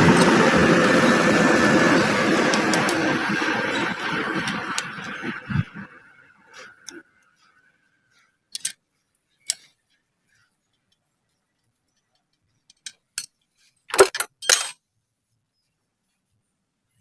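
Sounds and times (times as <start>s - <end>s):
metal tools clinking and knocking: 12.6s - 14.8s.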